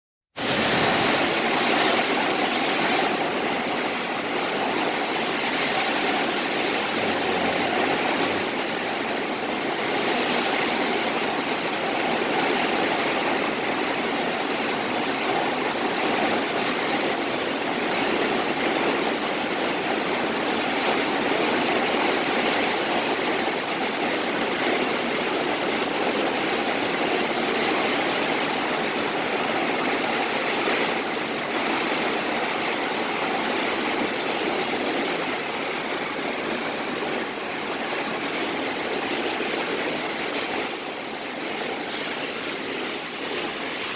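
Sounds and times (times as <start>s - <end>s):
strong wind blowing: 0.4s - 19.2s.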